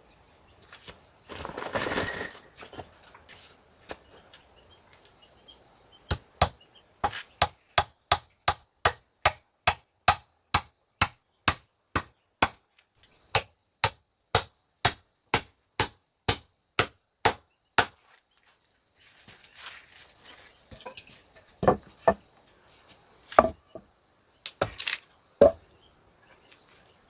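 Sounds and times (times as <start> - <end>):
hand tool striking wood: 6.1 - 12.6, 13.3 - 18.0, 20.7 - 22.2, 23.3 - 23.8, 24.5 - 25.6.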